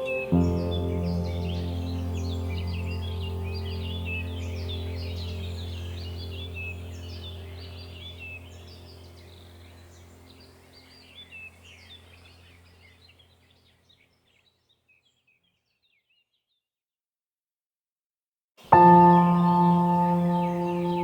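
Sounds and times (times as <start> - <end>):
low drone background music: 0.0 - 12.7, 18.8 - 21.0
small birds chirping: 0.0 - 16.7, 18.6 - 21.0.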